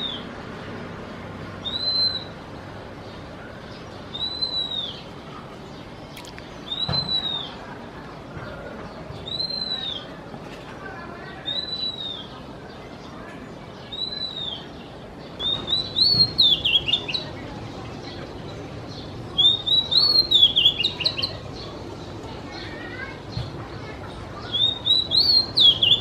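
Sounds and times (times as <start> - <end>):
bird singing whistled notes: 0.0 - 0.3, 1.6 - 2.5, 3.9 - 5.1, 6.6 - 7.6, 9.2 - 10.2, 11.4 - 12.4, 13.8 - 17.4, 18.9 - 21.7, 24.4 - 26.0.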